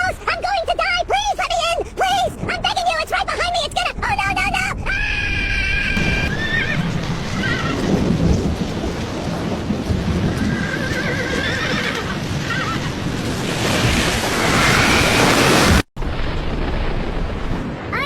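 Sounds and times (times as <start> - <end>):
roar of storm wind: 1.8 - 18.0
animal crying out: 4.8 - 7.9.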